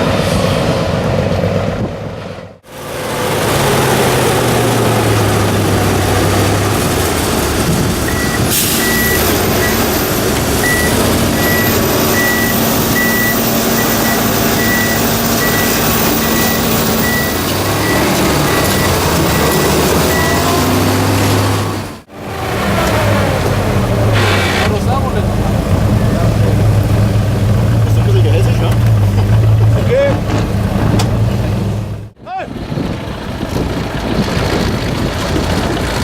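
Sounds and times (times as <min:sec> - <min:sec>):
truck engine running: 0:00.0 - 0:36.0
reversing beeper: 0:08.1 - 0:10.0, 0:10.6 - 0:21.0.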